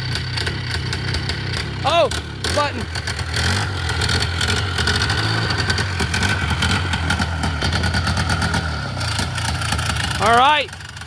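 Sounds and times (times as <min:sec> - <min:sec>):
atv engine idling: 0:00.0 - 0:11.0.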